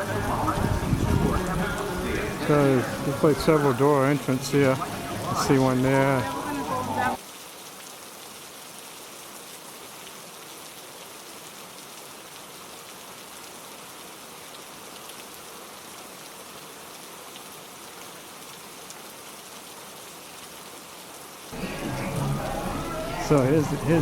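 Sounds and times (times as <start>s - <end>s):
falling water hissing: 0.0s - 7.2s, 21.5s - 24.0s.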